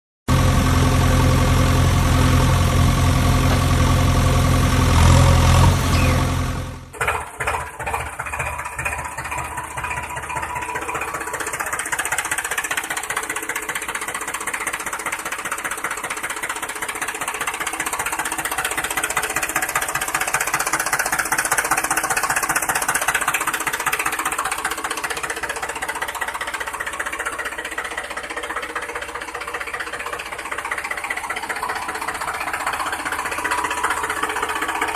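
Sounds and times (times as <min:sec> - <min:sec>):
engine humming: 0:00.3 - 0:07.0
rattling mechanical running: 0:00.3 - 0:34.9.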